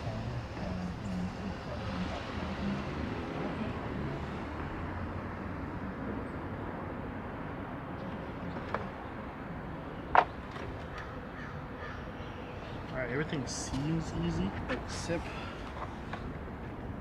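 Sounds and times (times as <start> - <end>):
vehicle low rumble: 0.0 - 11.3.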